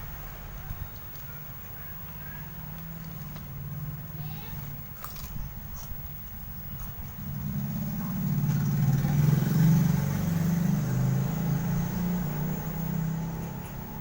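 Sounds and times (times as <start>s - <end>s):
vehicle engine passing by: 7.0s - 14.0s.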